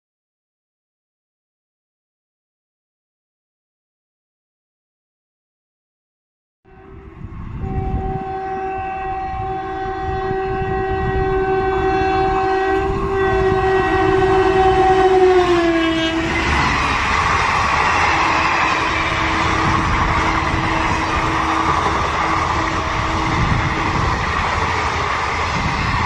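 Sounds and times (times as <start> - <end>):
locomotive horn long blast: 6.7 - 16.6, 18.1 - 24.2.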